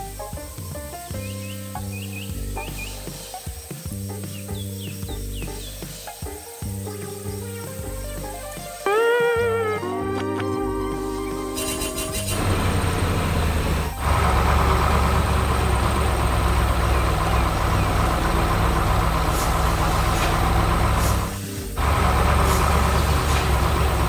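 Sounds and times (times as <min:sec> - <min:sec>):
diesel engine running: 0:11.6 - 0:24.0.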